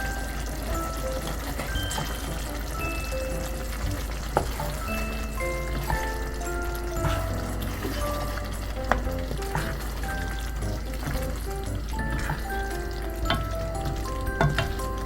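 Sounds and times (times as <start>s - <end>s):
background music: 0.0s - 15.0s
food sizzling in a pan: 0.0s - 15.0s.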